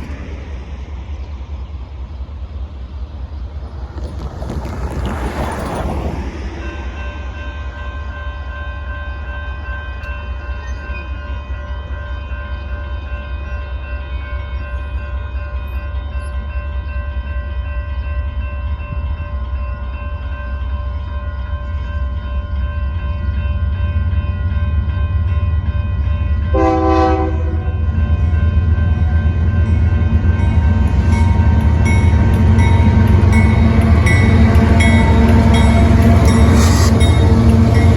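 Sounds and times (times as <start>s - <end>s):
diesel train rumble: 0.0s - 37.9s
train horn blast: 26.5s - 27.9s, 32.8s - 37.9s.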